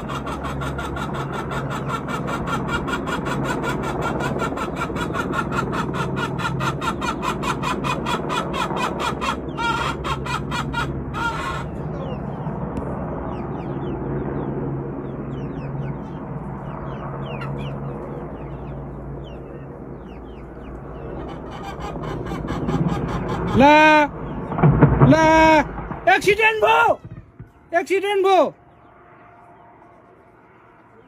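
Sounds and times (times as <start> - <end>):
chickens clucking: 0.0 - 14.0, 15.0 - 24.6
steady low hum: 0.0 - 27.8
helicopter rotor chopping: 0.0 - 28.5.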